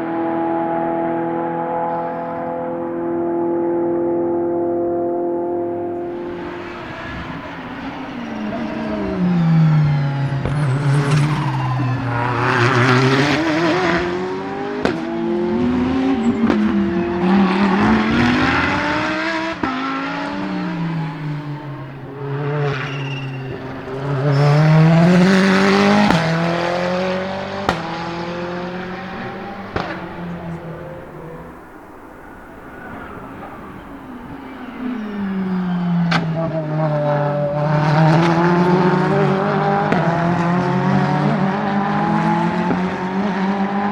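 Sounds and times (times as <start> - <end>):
race car engine accelerating: 0.0 - 43.9
sharp exhaust bangs: 6.0 - 39.2.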